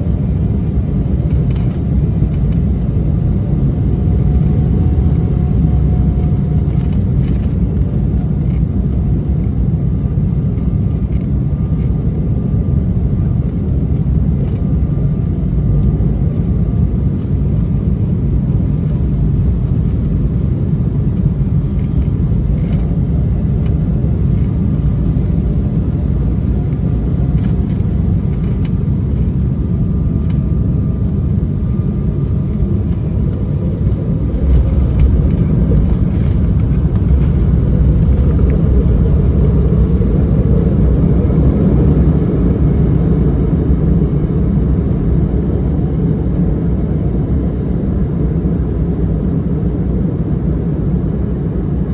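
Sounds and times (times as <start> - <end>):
jet engines rumbling: 0.0 - 51.9
wheels rolling: 32.2 - 41.3.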